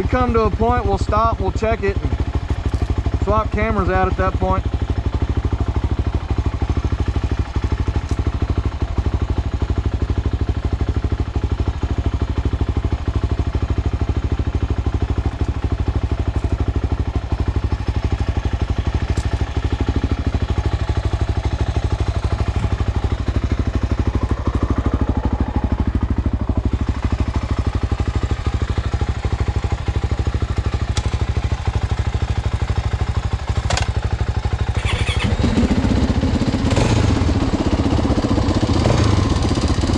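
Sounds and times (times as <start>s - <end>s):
dirt bike engine running: 0.0s - 39.9s
rattle and rush of riding: 2.4s - 3.1s.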